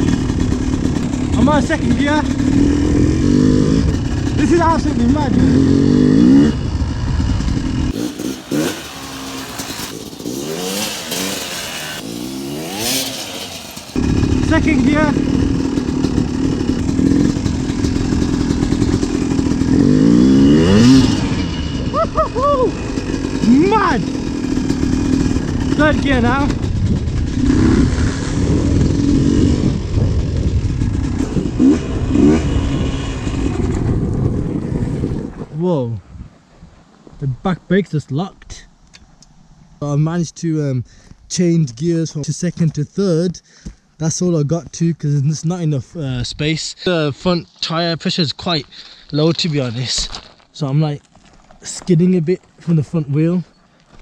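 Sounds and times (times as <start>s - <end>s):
two-stroke engine revving: 0.0s - 35.3s.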